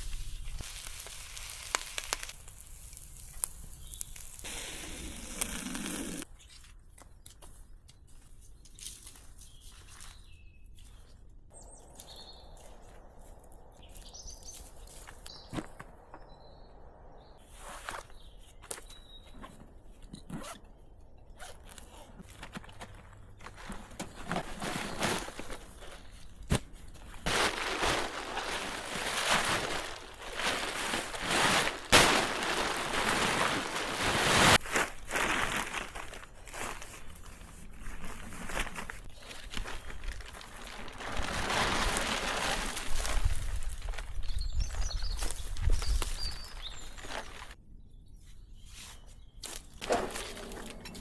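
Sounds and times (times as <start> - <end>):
forest birds chirping: 3.5 - 22.1, 39.1 - 51.0.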